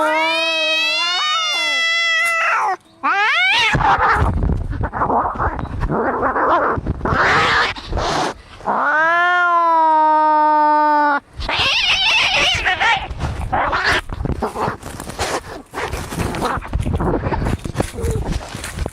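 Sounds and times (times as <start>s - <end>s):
cat yowling: 0.0s - 4.3s, 8.7s - 14.0s
cats hissing and snarling: 0.0s - 18.9s.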